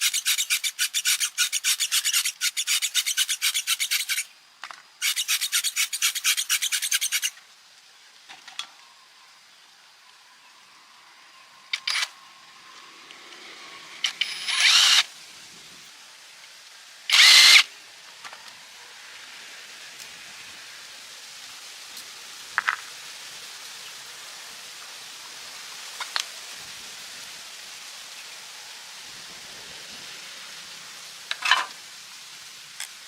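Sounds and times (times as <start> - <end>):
steady hiss: 0.0 - 33.0
power tool running: 14.1 - 15.1, 17.1 - 17.6.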